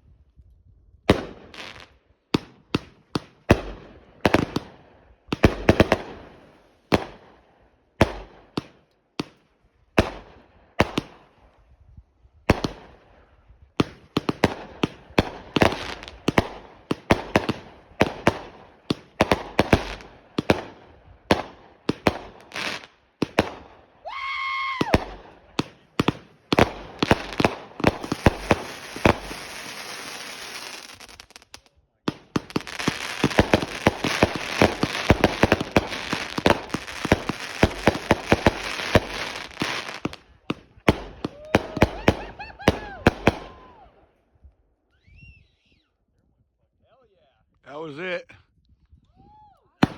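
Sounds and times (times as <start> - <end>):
firework bangs: 5.3 - 7.2, 13.8 - 23.8, 24.8 - 43.7
firework crackling and pops: 5.3 - 7.2, 12.5 - 13.0, 13.8 - 43.6
rising firework whistle: 41.2 - 43.8, 44.9 - 46.0.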